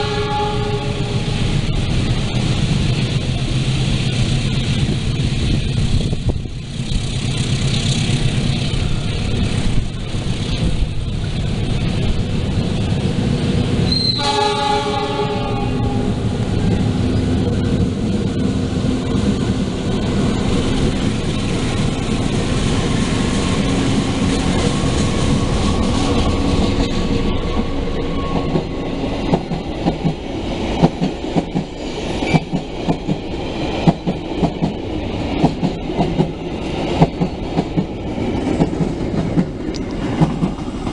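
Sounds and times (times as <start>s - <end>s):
train horn: 0.0s - 1.6s, 13.9s - 16.3s
train wheels clacking on rails: 1.2s - 40.9s.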